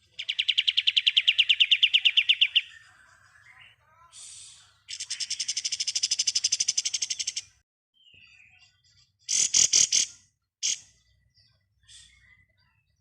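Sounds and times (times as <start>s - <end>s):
bird chirp: 0.0s - 13.0s
bird rattling trill: 5.2s - 7.4s.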